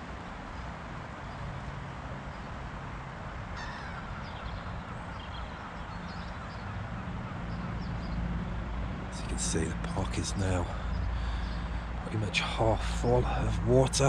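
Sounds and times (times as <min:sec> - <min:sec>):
birds calling: 0:03.5 - 0:08.3, 0:09.1 - 0:14.0.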